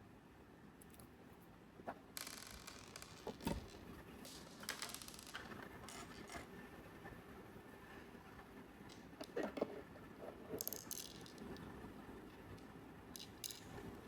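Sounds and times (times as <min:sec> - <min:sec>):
plastic capsules rustling and clicking: 0:02.2 - 0:06.5, 0:10.6 - 0:11.7, 0:12.3 - 0:13.8.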